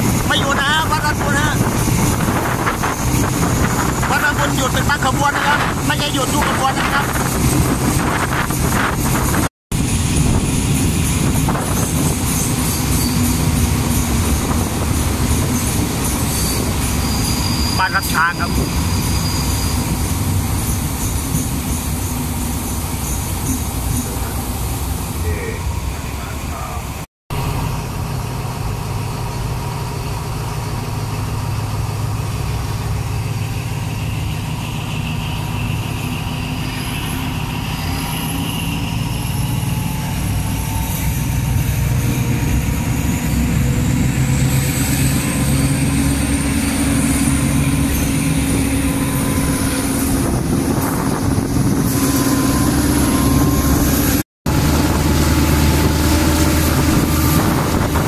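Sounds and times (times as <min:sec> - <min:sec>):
wind noise: 0:00.0 - 0:17.6, 0:39.8 - 0:58.0
train rumbling on track: 0:00.0 - 0:58.0.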